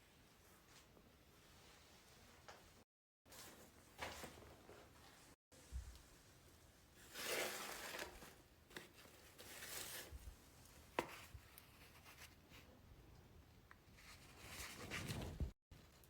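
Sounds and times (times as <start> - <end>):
faint rustling and scraping: 13.9 - 16.0.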